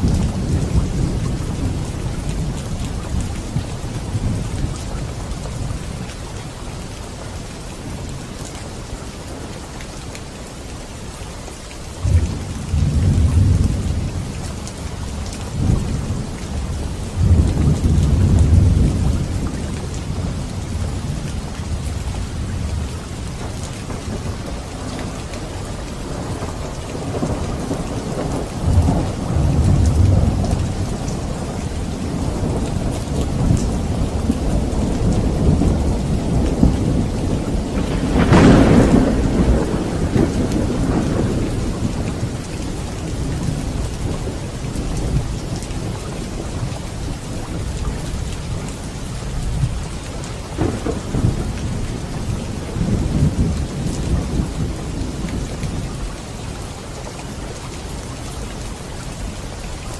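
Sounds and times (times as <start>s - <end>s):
steady rain: 0.0s - 59.9s
thunder rumbling: 12.0s - 55.9s.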